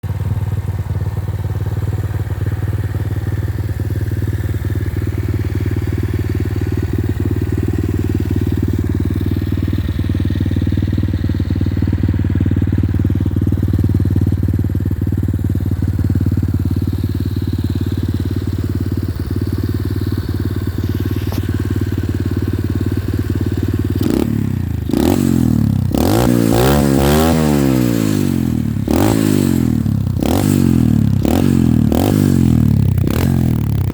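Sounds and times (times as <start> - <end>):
pit bike engine idling and revving: 0.0 - 33.9.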